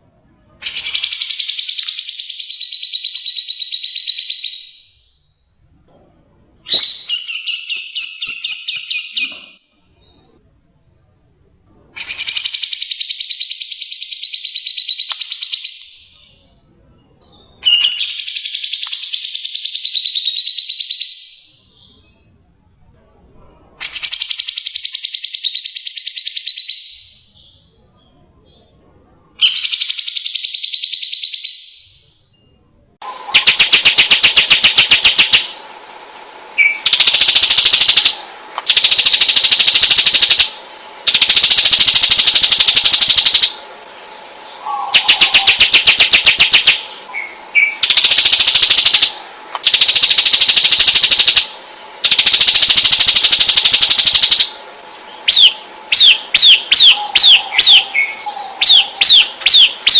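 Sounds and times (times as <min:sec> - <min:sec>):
songbird trills: 0:00.6 - 0:05.3, 0:06.7 - 0:10.3, 0:29.4 - 0:35.8, 0:36.5 - 0:59.9
downward-sweeping whistles: 0:00.6 - 0:05.4
bird call: 0:06.7 - 0:10.2, 0:33.0 - 0:35.7, 0:36.5 - 0:59.9.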